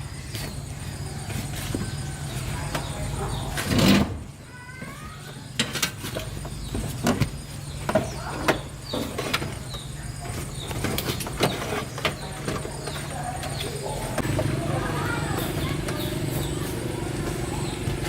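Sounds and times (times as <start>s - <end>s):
bird chirps: 4.4s - 18.0s
steady low hum: 5.5s - 18.0s
clicks and knocks of repair work: 5.6s - 9.7s.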